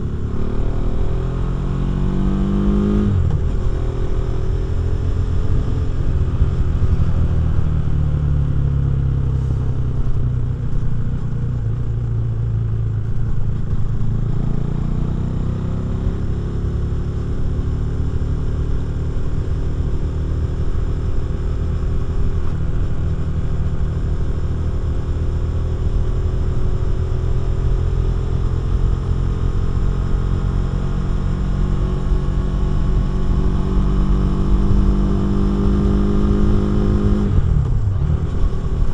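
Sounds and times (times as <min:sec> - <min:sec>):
motorcycle engine revving: 0:00.0 - 0:10.1, 0:26.6 - 0:38.9.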